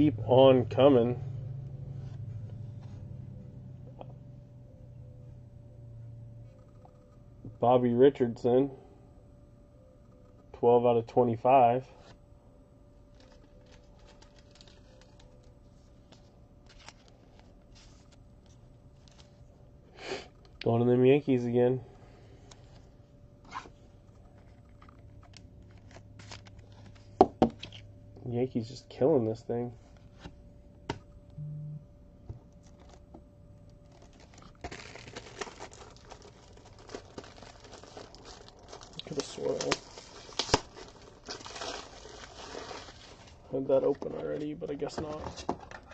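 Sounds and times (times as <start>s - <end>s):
plastic wrapping crinkling and tearing: 13.1s - 15.5s, 16.1s - 19.4s, 24.4s - 27.8s, 32.5s - 33.1s, 33.8s - 44.5s
trading cards rustling and clicking: 13.1s - 19.4s, 33.9s - 45.9s
short low buzz: 31.3s - 32.1s.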